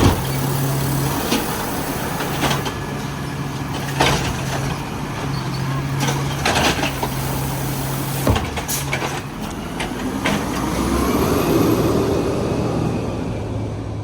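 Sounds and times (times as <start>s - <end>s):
garbage truck engine hum: 0.0s - 14.0s.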